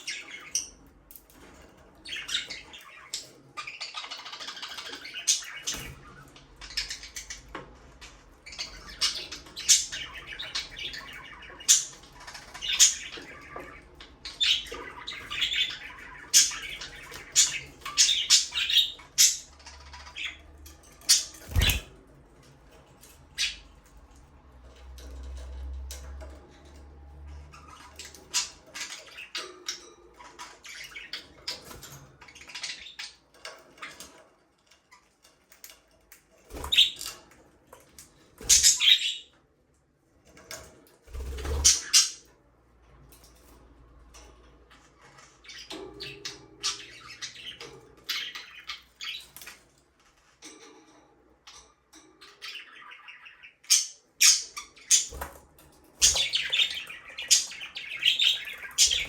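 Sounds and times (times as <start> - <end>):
budgerigars chirping: 2.0 - 20.4, 21.0 - 21.9, 38.4 - 39.3, 41.1 - 42.3, 45.4 - 49.4, 52.2 - 55.4, 56.0 - 59.0.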